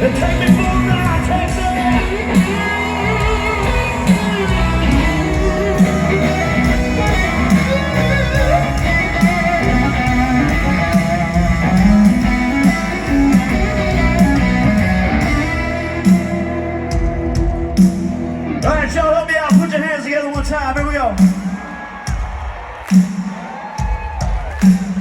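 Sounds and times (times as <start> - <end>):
electric guitar lead: 0.0 - 19.0
bass guitar: 0.0 - 19.2
steady drum beat: 0.0 - 25.0.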